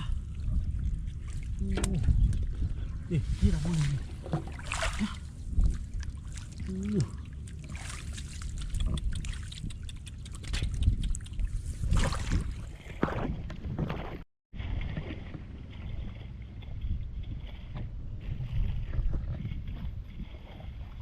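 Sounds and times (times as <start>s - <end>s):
water sloshing and splashing: 0.0s - 21.0s
wind rumble on microphone: 0.0s - 21.0s
short vocal sound: 6.6s - 7.3s.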